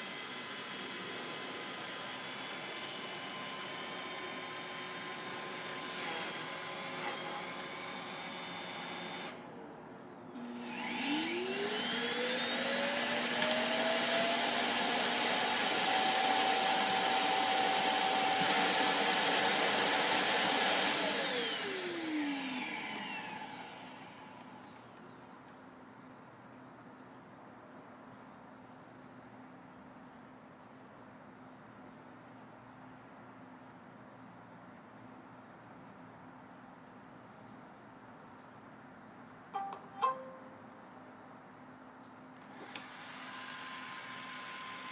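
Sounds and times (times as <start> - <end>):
steady motor hum: 0.0 - 25.2
evacuation motor whine: 10.4 - 24.7.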